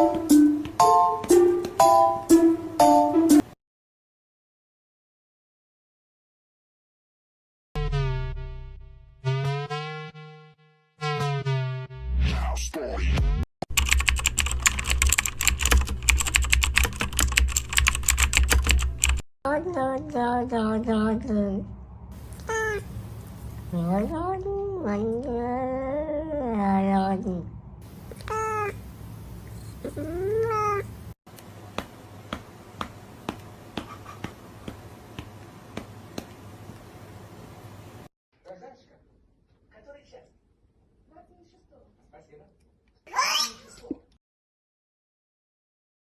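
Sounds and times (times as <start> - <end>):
fast typing on keyboard: 13.7 - 19.2
cat meowing: 22.3 - 22.9, 28.1 - 28.8, 29.8 - 30.9.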